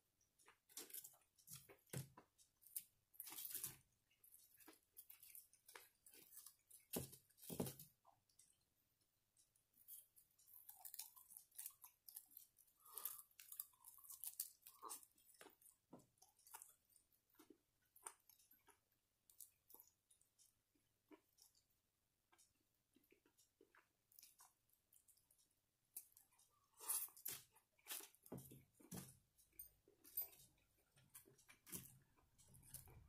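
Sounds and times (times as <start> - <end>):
crunchy chewing and biting: 10.4 - 16.8.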